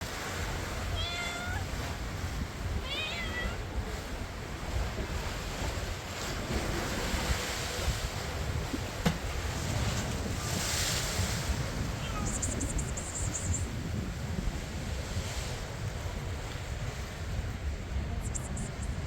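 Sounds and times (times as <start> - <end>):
sea surf: 0.0 - 19.0
wind noise: 0.0 - 19.0
cat meowing: 0.9 - 1.7, 2.8 - 3.6, 12.0 - 12.7.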